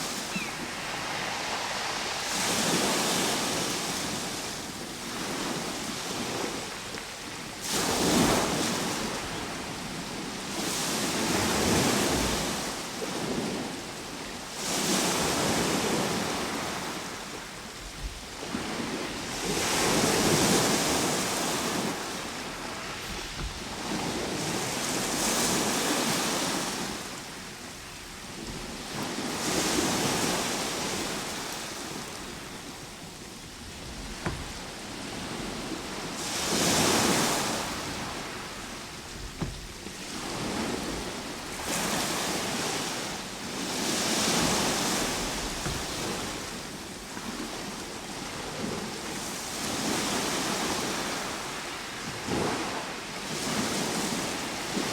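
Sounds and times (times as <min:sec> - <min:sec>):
ocean waves surging: 0:00.0 - 0:06.5, 0:14.5 - 0:48.6.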